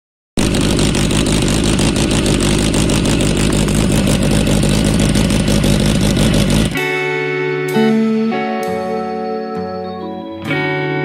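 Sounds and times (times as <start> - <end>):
motorcycle engine running: 0.4 - 7.2.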